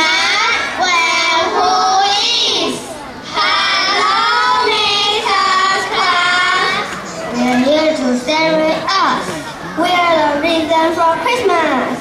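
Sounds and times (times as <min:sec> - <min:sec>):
children singing together: 0:00.0 - 0:08.0.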